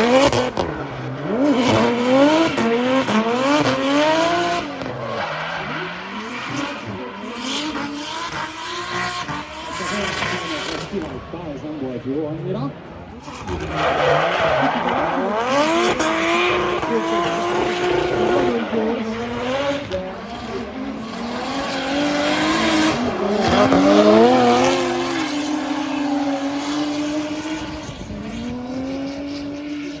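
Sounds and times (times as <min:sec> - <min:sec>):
car engine revving: 0:00.0 - 0:30.0
tyre squeal: 0:13.2 - 0:16.1.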